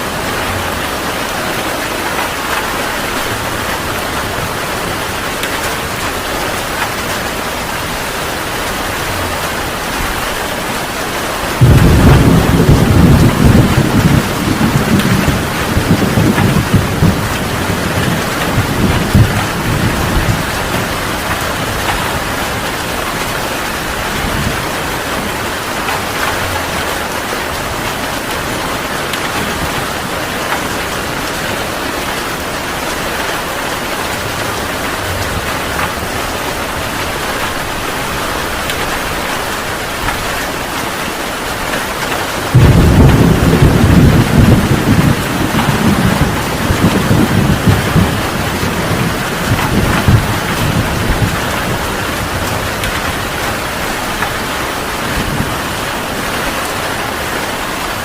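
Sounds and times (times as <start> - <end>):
heavy rain pouring: 0.0 - 58.0
thunder rumbling: 0.0 - 58.0
loud thunderclap: 11.5 - 27.2, 42.1 - 54.4.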